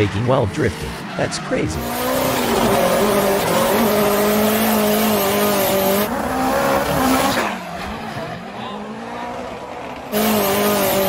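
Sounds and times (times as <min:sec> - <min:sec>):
car engine at high revs: 0:00.0 - 0:11.0.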